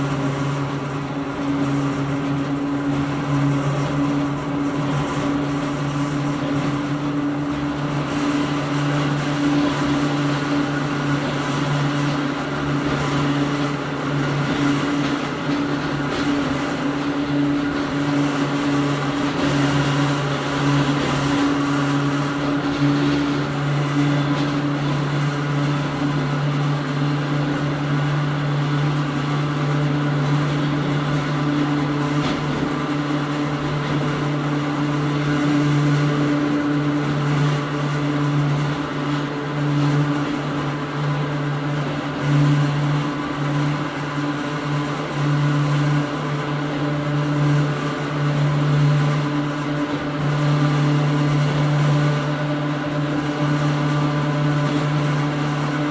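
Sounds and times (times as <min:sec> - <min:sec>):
wheel and rail rumble: 0:00.0 - 0:55.9.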